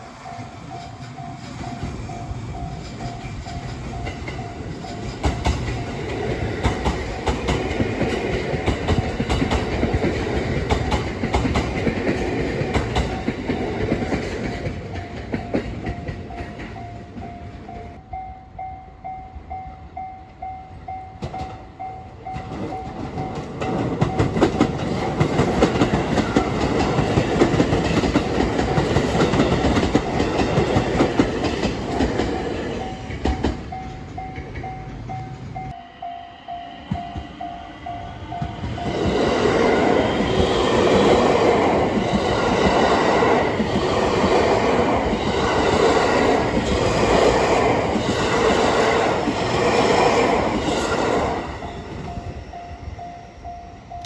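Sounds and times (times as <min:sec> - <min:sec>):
level crossing warning bell: 0:00.0 - 0:11.6, 0:14.6 - 0:40.6, 0:51.4 - 0:54.0
train wheels clattering over rail joints: 0:02.7 - 0:16.8, 0:22.4 - 0:32.4.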